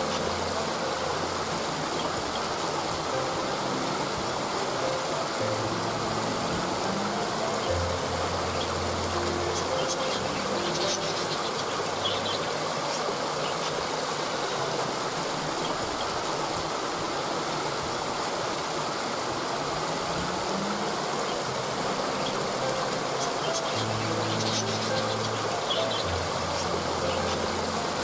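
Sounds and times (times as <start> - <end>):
waterfall rushing: 0.0 - 28.0
high bird chirps: 7.6 - 13.7, 23.2 - 27.5.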